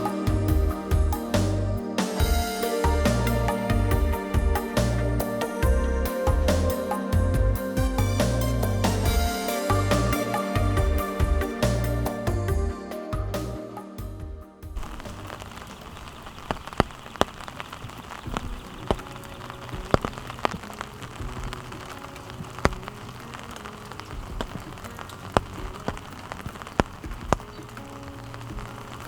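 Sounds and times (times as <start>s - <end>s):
heavy raindrops tapping: 14.7s - 29.0s
steady rain falling: 14.7s - 29.0s.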